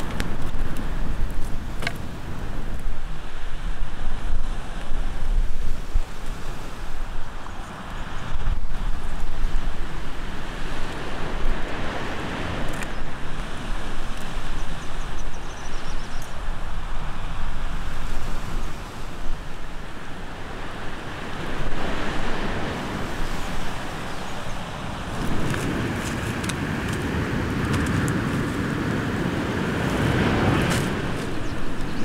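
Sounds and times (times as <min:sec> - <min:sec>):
wind buffeting microphone: 0:00.0 - 0:32.0
surf rushing: 0:16.6 - 0:32.0.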